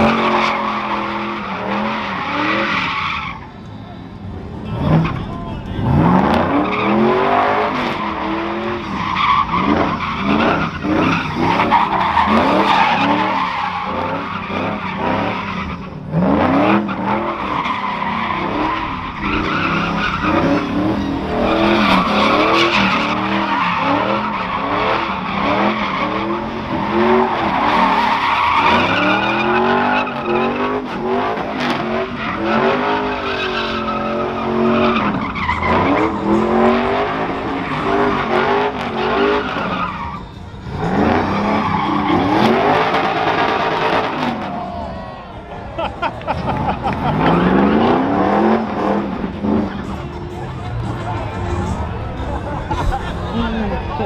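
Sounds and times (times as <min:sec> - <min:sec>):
tires squealing: 0:00.0 - 0:54.0
truck engines revving: 0:00.0 - 0:54.0.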